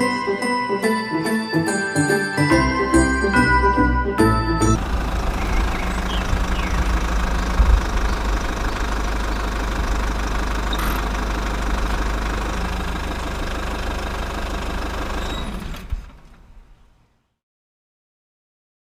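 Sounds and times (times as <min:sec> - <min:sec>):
music: 0:00.0 - 0:04.8
small diesel engine running: 0:00.0 - 0:17.0.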